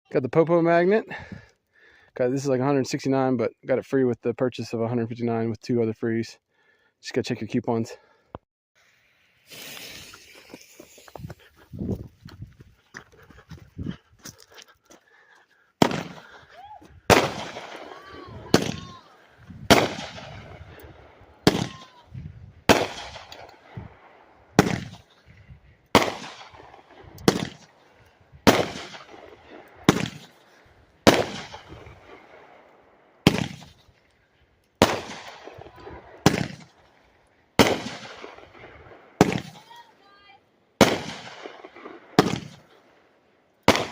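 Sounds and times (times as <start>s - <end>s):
faint firework crackle: 8.8s - 11.7s, 15.8s - 24.0s
firework shots: 9.5s - 11.2s, 15.8s - 16.4s, 17.1s - 25.2s, 25.9s - 34.0s, 34.8s - 39.8s, 40.8s - 42.8s, 43.6s - 43.9s.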